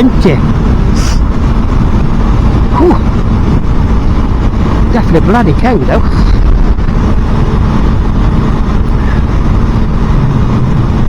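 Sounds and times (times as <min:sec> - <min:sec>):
motorcycle engine cruising: 0:00.0 - 0:11.0
wind rushing over microphone: 0:00.0 - 0:11.0.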